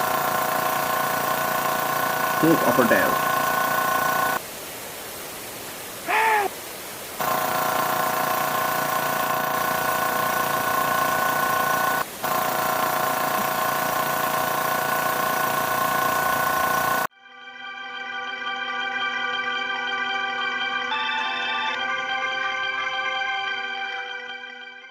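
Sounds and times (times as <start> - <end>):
constant machine hum: 0.0 - 4.4, 7.2 - 17.1
loud noise: 6.1 - 6.5.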